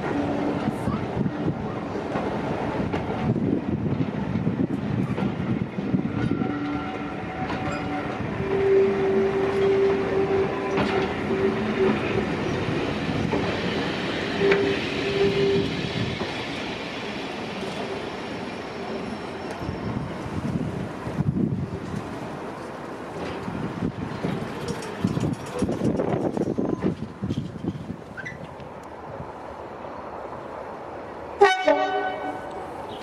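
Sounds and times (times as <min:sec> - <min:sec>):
train coaches clickety-clack: 0:00.0 - 0:33.0
locomotive horn: 0:06.1 - 0:12.4, 0:14.4 - 0:15.7, 0:31.4 - 0:33.0.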